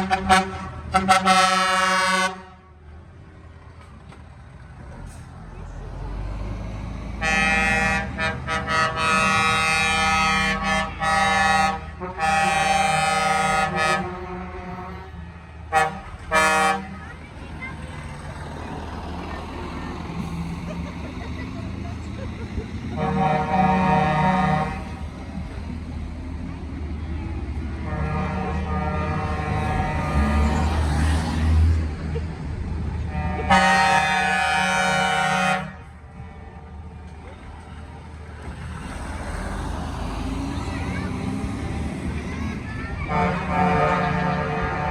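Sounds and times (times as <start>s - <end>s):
truck air horn blasts: 0.0s - 2.8s, 7.2s - 17.1s, 22.9s - 25.1s, 27.7s - 30.8s, 33.0s - 36.8s, 43.0s - 44.9s
truck engine running: 0.0s - 44.9s.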